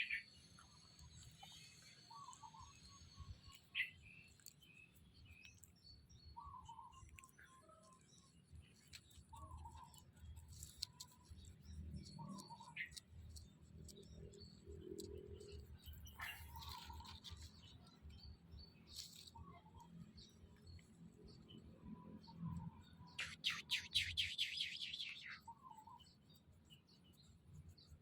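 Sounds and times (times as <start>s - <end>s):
sharp high bird chirps: 23.0s - 26.1s
bird warbling call: 23.2s - 25.7s.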